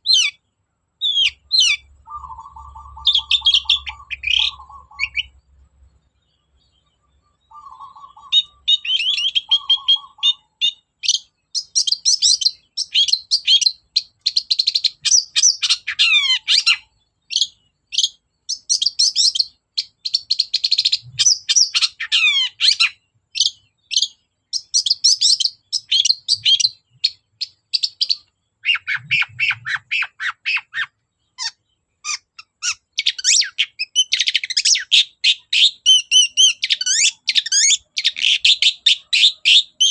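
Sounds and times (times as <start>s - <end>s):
bird singing chattering song: 0.0s - 39.9s.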